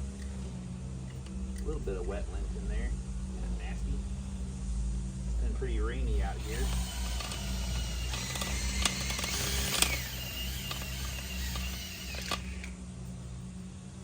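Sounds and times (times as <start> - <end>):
drill motor drone: 6.0 - 12.8
sharp clicks: 6.5 - 12.8.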